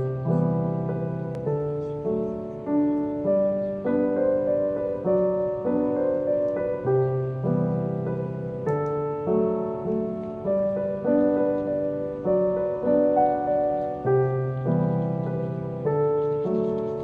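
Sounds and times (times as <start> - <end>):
gentle solo piano piece: 0.0 - 17.0.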